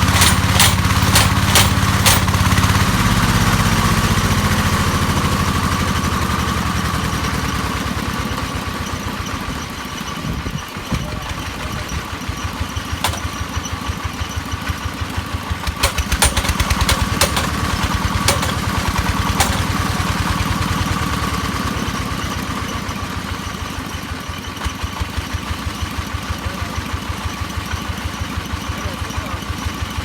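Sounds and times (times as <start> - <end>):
sharp clicks: 0.0 - 2.4, 13.0 - 13.4
hammer drill thumping: 0.0 - 2.7, 13.0 - 13.4, 15.8 - 20.1.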